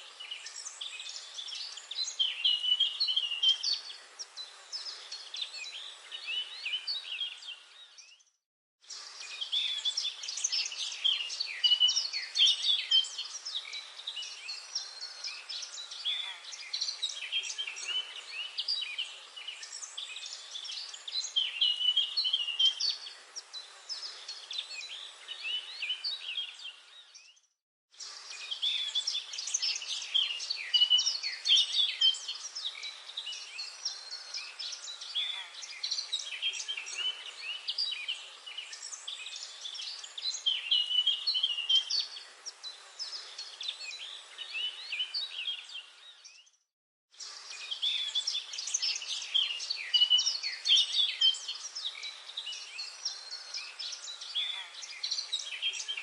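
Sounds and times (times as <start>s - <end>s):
birds singing and chirping: 0.0s - 46.6s, 47.2s - 56.0s.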